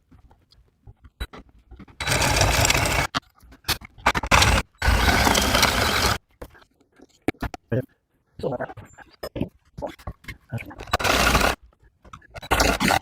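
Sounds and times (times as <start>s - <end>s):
power tool running in bursts: 2.0s - 3.1s.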